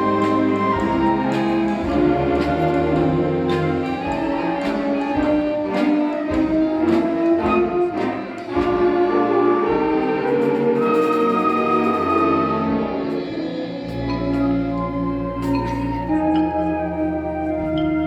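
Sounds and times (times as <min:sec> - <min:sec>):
percussion strokes: 0:00.0 - 0:18.0
wind and brass instruments: 0:00.0 - 0:18.0.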